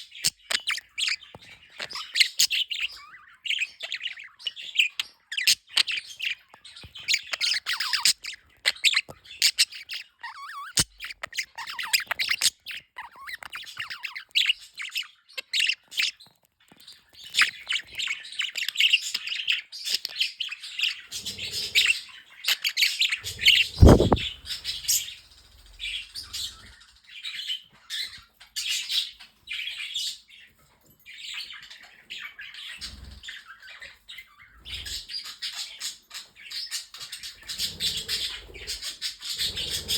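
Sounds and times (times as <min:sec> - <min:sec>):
budgerigars chattering: 0:20.2 - 0:25.2
loud thump: 0:23.8 - 0:24.3.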